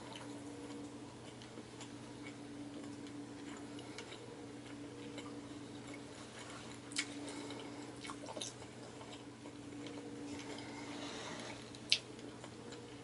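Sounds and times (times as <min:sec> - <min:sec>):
soft chewing: 0:00.0 - 0:13.0
steady low hum: 0:00.0 - 0:13.0.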